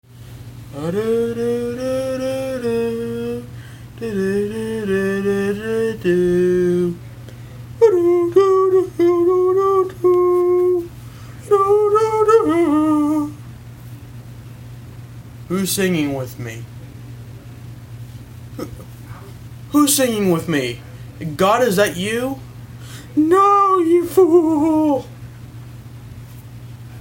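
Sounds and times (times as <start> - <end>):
steady low hum: 0.0 - 27.0
person singing wordless tune: 0.7 - 7.0, 7.8 - 13.4, 23.0 - 25.2.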